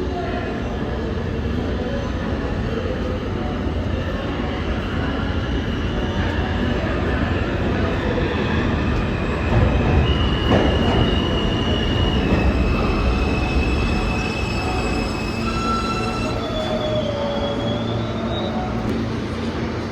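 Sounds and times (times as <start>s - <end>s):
subway train rumbling on rails: 0.0s - 19.9s
high wheel squeal: 8.1s - 18.9s.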